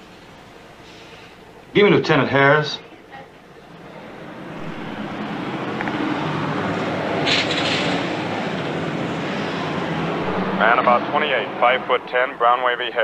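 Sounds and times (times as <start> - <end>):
street traffic: 2.8 - 13.0
car engine driving: 3.4 - 13.0.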